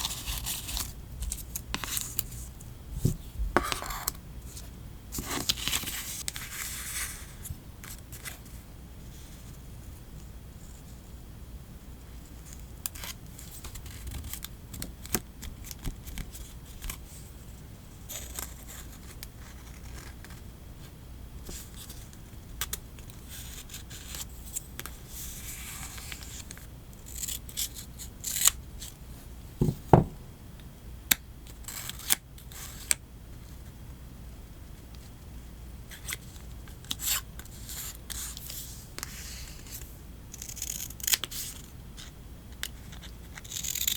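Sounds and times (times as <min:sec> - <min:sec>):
scissors snipping paper: 0:40.4 - 0:41.5, 0:43.4 - 0:43.9.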